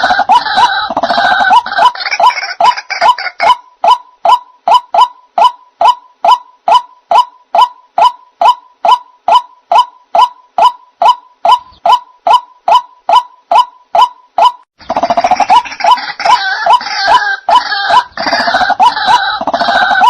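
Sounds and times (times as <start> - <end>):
waterhen call repeated: 0.0 - 20.0.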